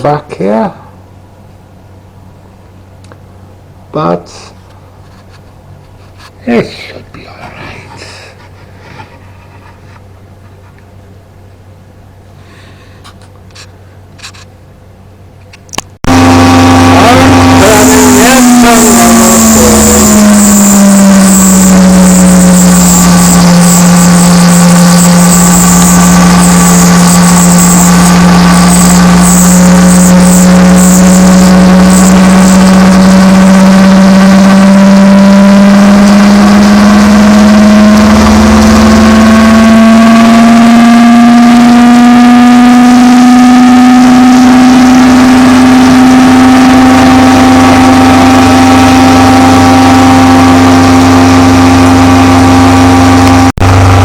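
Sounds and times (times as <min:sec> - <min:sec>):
lathe motor humming: 0:16.1 - 0:54.0
cutting hiss: 0:16.8 - 0:33.8.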